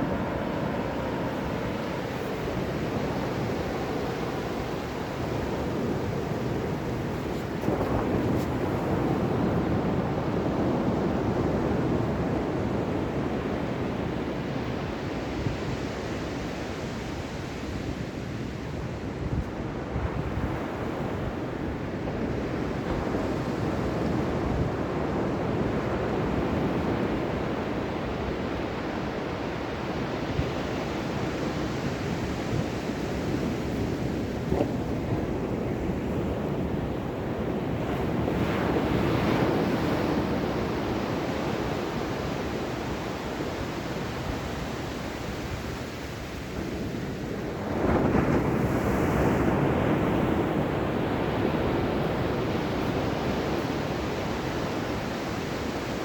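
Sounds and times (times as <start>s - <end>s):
ocean waves breaking: 47.6s - 56.0s.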